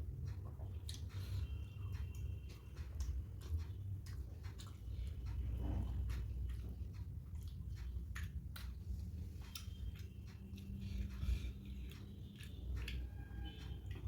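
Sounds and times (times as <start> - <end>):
person chewing food: 0.0 - 14.0
wet mouth clicks and smacks: 0.1 - 14.0.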